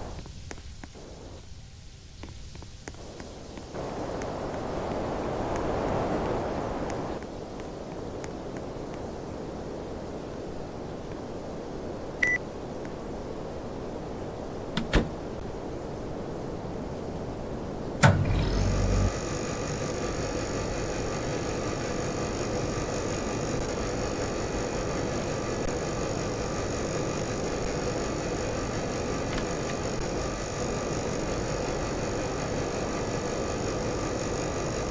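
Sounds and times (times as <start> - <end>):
air conditioner humming: 14.5 - 15.7, 17.5 - 34.9
sharp click: 14.8 - 15.2, 18.0 - 22.1.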